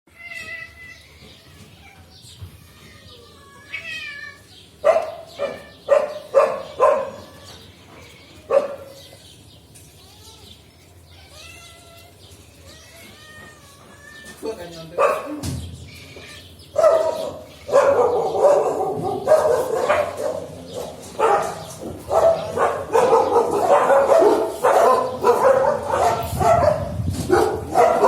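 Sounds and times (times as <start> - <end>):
cat meowing: 0.1 - 4.6, 10.0 - 14.6.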